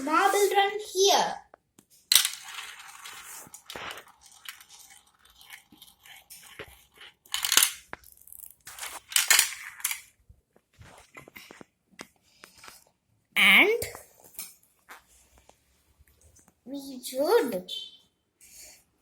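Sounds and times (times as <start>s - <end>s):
marble run clicking and clattering: 2.1s - 10.1s.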